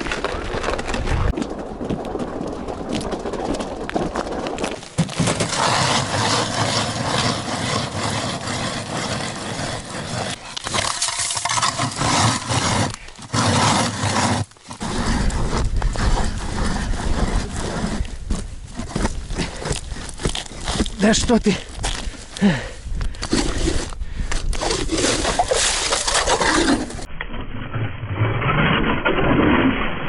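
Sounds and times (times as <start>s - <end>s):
ice auger cutting ice: 5.0s - 18.1s, 23.2s - 27.1s.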